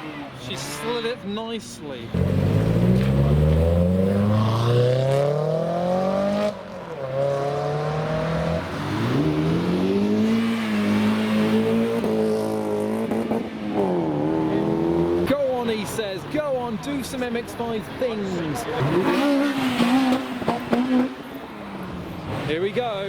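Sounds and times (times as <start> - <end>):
car engine accelerating hard: 2.1 - 15.3, 18.7 - 21.2.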